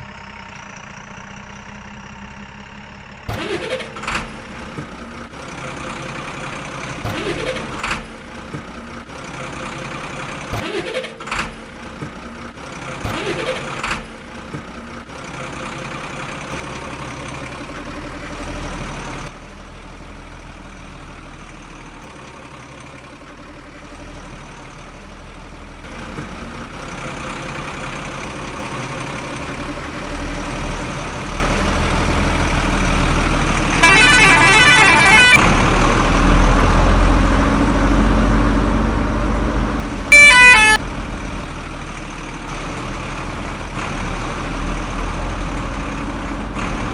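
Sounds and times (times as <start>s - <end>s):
truck engine running: 0.0s - 46.9s
wavering truck horn: 33.6s - 36.3s, 40.0s - 40.9s.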